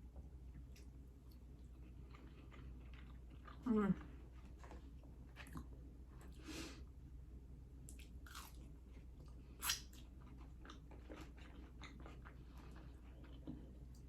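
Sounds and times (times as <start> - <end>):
person chewing: 0.5 - 3.6, 7.9 - 14.0.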